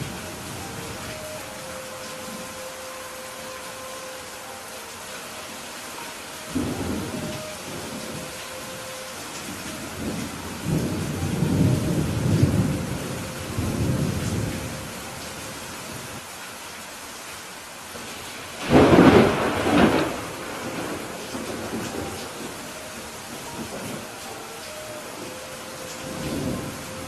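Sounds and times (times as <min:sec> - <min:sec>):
steady rain: 0:00.0 - 0:27.0
low rolling thunder: 0:06.5 - 0:15.1, 0:18.6 - 0:27.0.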